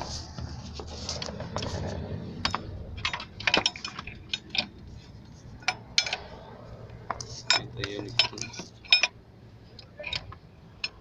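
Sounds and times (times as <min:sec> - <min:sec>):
metal tools clinking: 0:02.4 - 0:04.8, 0:07.3 - 0:09.2.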